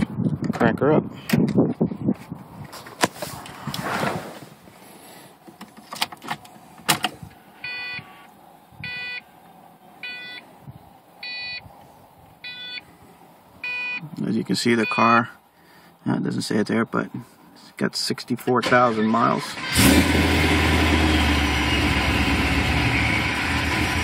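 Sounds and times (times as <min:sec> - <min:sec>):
car warning chime dinging: 0:07.6 - 0:09.3, 0:10.0 - 0:10.4, 0:12.4 - 0:12.8, 0:13.6 - 0:14.0, 0:14.8 - 0:15.2.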